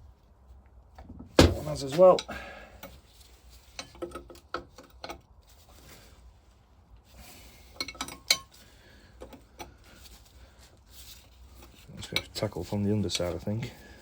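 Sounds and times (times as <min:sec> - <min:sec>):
spanner clinking on metal: 0:07.8 - 0:08.6.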